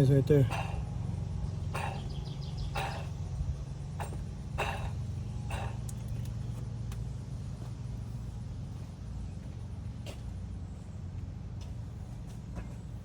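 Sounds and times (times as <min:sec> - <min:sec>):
pump bearing rattling and grinding: 0:00.0 - 0:00.9, 0:01.7 - 0:03.2, 0:03.9 - 0:06.4
steady low hum: 0:00.0 - 0:13.0.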